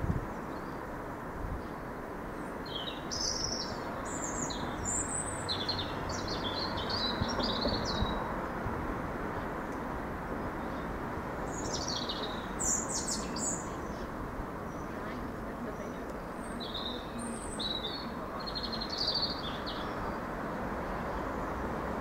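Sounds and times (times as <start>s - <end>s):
small songbird chirping: 1.6s - 8.3s, 10.5s - 20.3s.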